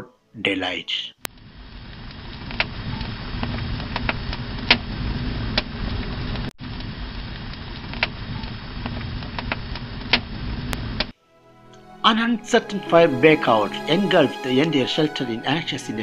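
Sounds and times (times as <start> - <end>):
fire crackling and popping: 1.3 - 11.1.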